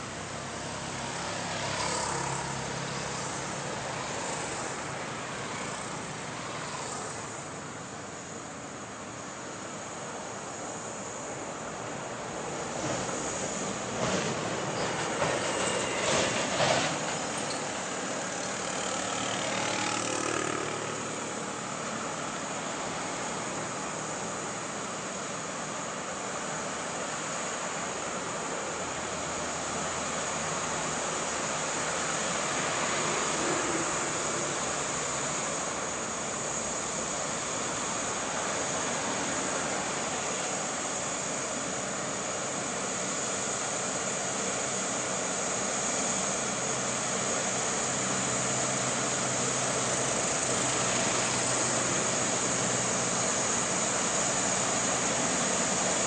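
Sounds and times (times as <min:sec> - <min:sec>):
passing cars: 0:00.0 - 0:56.0
passing motorcycles: 0:00.6 - 0:07.5, 0:15.2 - 0:21.8.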